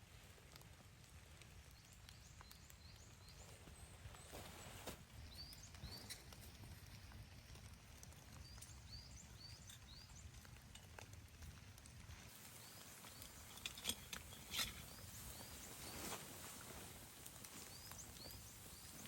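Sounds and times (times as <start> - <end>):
small bird chirping: 5.2 - 6.6, 12.3 - 19.0.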